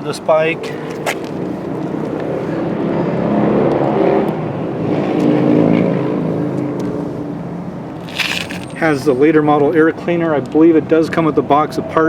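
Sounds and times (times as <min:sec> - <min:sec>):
passing vehicle engine: 0:00.6 - 0:09.4.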